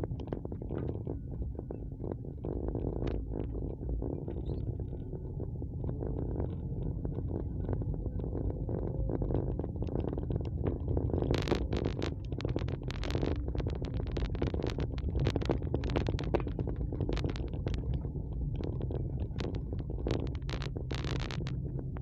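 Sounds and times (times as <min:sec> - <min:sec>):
short crackles: 0:08.1 - 0:22.0.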